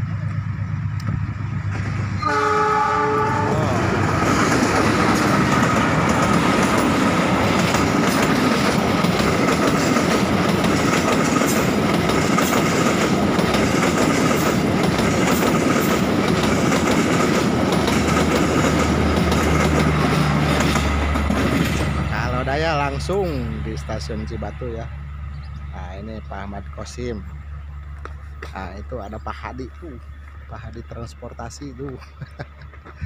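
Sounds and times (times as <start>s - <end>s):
diesel engine hum: 0.0s - 33.0s
train wheels clattering: 3.8s - 24.4s.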